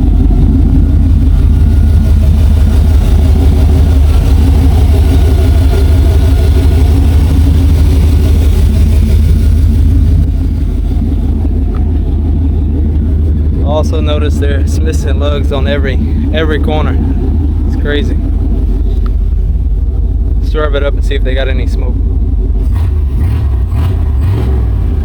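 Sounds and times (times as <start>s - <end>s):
pickup truck engine running: 0.0s - 25.0s.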